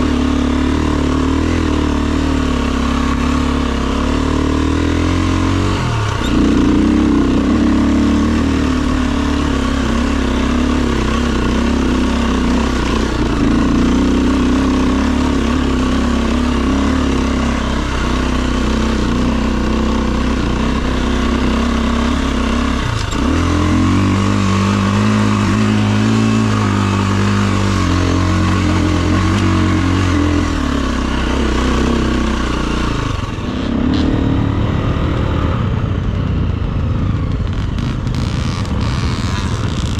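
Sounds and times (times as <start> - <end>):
dirt bike engine: 0.0 - 39.9.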